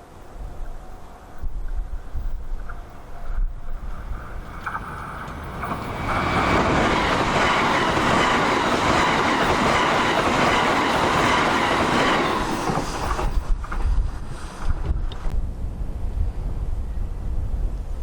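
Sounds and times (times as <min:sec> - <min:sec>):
electric train passing: 0:00.0 - 0:17.9.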